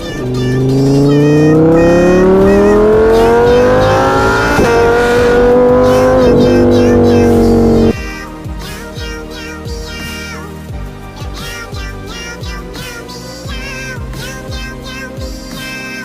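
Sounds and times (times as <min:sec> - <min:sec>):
engine revving: 0:00.0 - 0:08.0.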